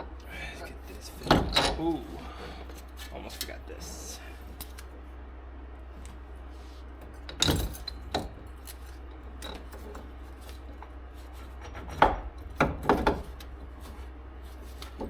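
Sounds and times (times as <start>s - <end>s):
metal parts knocking and scraping: 1.1s - 1.9s, 7.2s - 14.0s.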